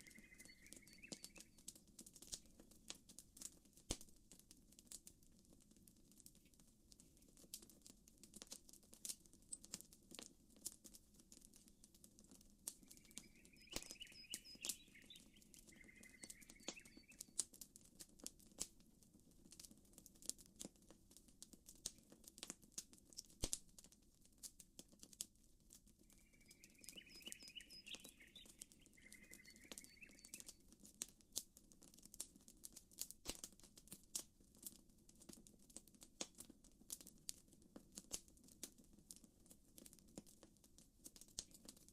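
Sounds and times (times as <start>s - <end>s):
bird chirping: 0.0s - 1.6s, 12.8s - 17.4s, 26.0s - 30.6s
campfire crackling and popping: 0.0s - 41.9s.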